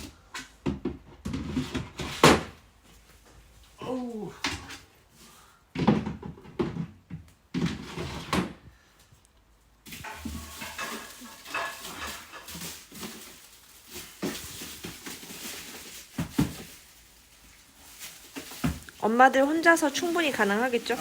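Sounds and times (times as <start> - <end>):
rustling of unpacking: 9.8 - 21.0.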